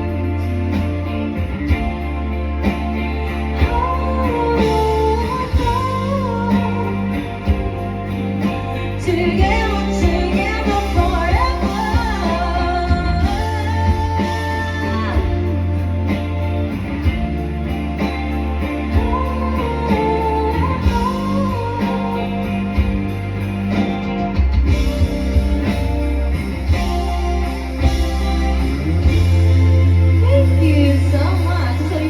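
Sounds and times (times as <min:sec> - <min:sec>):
person singing: 0:00.0 - 0:16.4, 0:18.7 - 0:23.9
bass notes: 0:00.0 - 0:32.0
guitar: 0:00.0 - 0:32.0.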